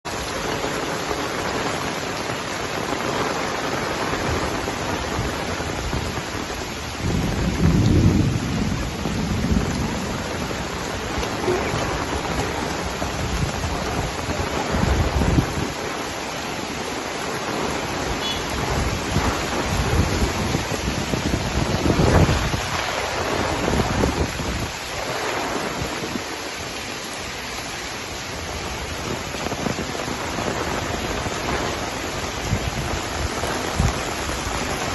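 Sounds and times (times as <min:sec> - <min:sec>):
heavy rain falling: 0:00.0 - 0:34.9
wind buffeting microphone: 0:04.2 - 0:16.1, 0:18.5 - 0:26.4, 0:28.4 - 0:34.9.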